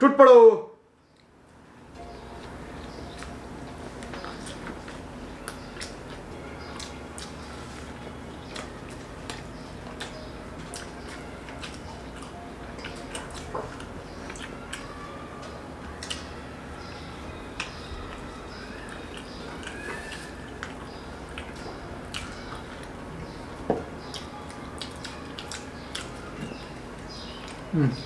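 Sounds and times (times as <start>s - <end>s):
low background hum: 0.0s - 28.0s
chewing and lip smacks: 3.9s - 7.9s, 8.5s - 14.9s, 16.0s - 16.3s, 24.0s - 26.6s.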